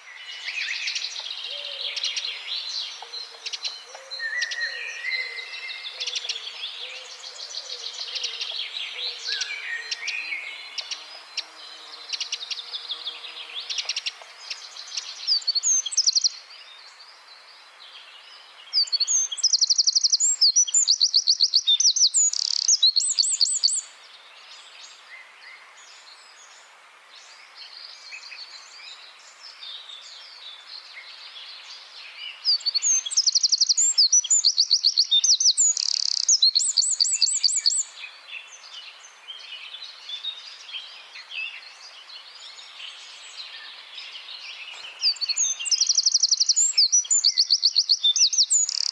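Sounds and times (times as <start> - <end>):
wren twittering: 18.9 - 23.8, 32.6 - 37.8, 45.0 - 48.9
loud fast bird trill: 45.1 - 48.9.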